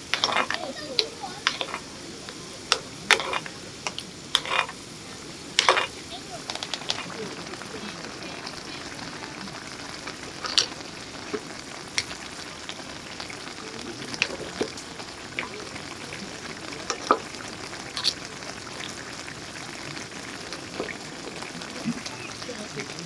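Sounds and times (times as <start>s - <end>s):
sharp clicks and pops: 0.0s - 4.8s, 5.6s - 13.5s, 14.1s - 19.0s
food sizzling in a pan: 0.0s - 23.0s.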